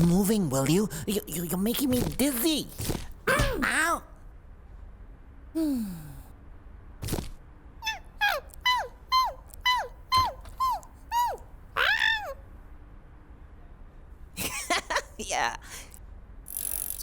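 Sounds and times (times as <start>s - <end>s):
animal character yelping: 3.3s - 4.1s, 7.8s - 12.4s.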